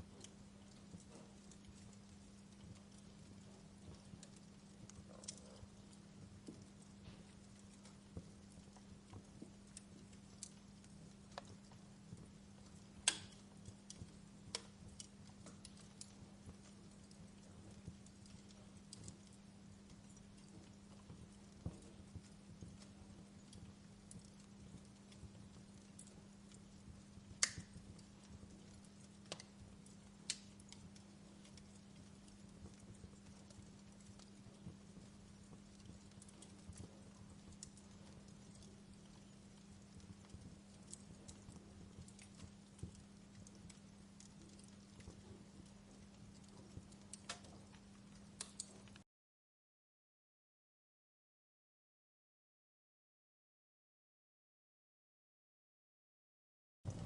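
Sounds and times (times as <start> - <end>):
wood fire crackling: 0.0 - 49.0
sharp fire pops: 12.8 - 16.7, 27.3 - 32.9, 47.2 - 47.6.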